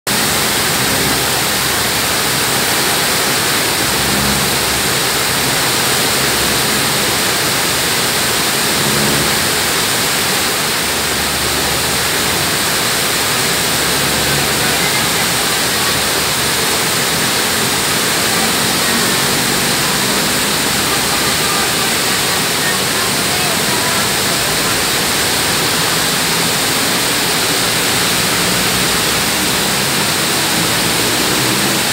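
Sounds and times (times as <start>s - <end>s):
heavy rain on pavement: 0.1s - 31.9s.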